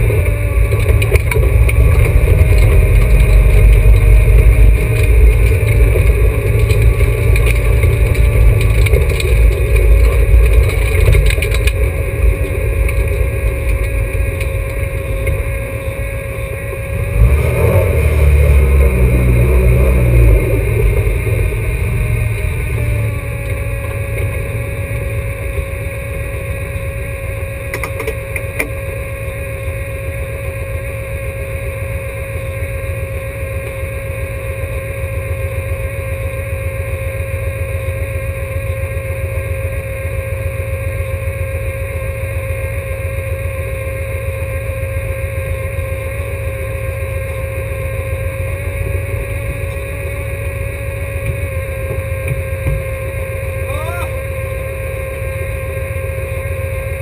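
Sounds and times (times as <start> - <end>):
race car engine idling: 0.0 - 57.0
rising whine: 0.0 - 57.0.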